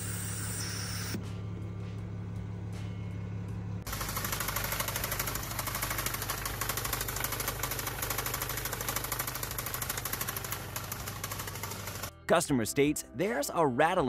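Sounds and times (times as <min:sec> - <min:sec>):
car engine knocking rhythmically: 0:01.6 - 0:12.1.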